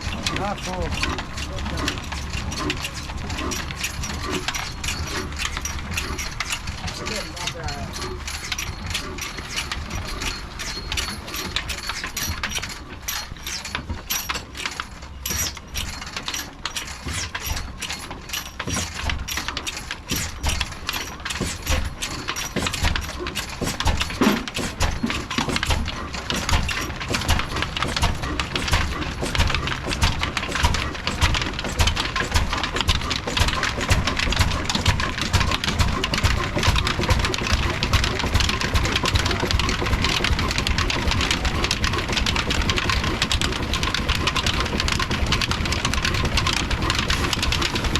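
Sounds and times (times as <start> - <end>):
diesel engine running: 0.0 - 13.7, 16.7 - 47.9.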